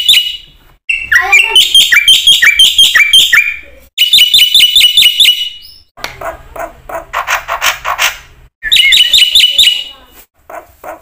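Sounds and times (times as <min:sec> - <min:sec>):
starling whistling song: 0:00.0 - 0:05.9, 0:08.6 - 0:09.9.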